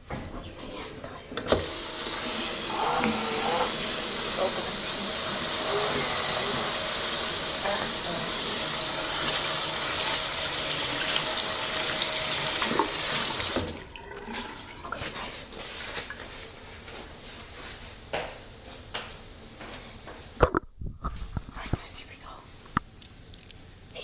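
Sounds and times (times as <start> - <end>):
water running from sink tap: 1.5 - 15.1.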